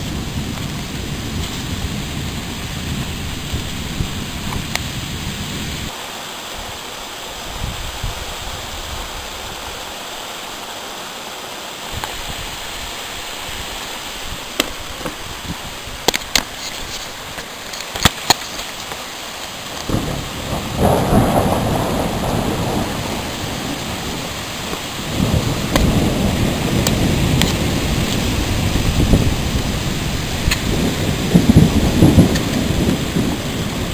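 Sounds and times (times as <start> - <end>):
thunder rumbling: 0.0 - 5.9, 19.6 - 33.9
steady rain: 0.0 - 33.9.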